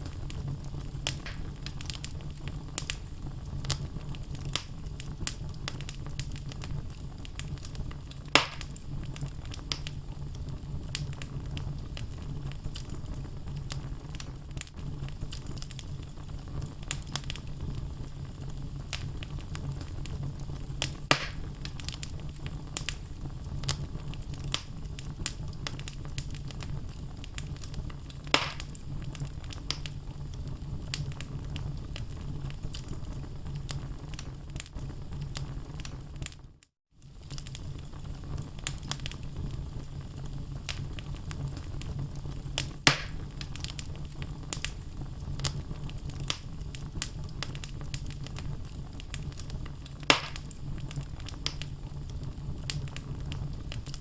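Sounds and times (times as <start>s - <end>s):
fire flames rumbling: 0.0s - 54.0s
wood crackling and popping: 0.0s - 54.0s.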